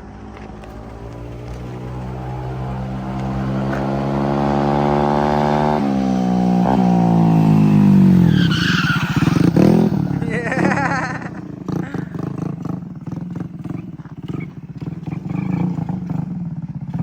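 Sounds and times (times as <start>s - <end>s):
moped engine revving: 0.0s - 17.0s
tyre squealing: 6.7s - 12.6s.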